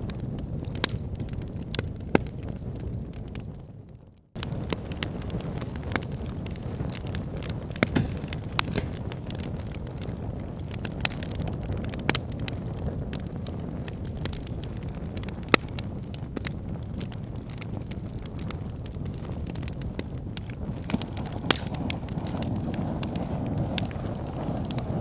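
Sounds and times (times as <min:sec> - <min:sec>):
fire crackling and popping: 0:00.0 - 0:25.0
bonfire low rush: 0:20.6 - 0:25.0.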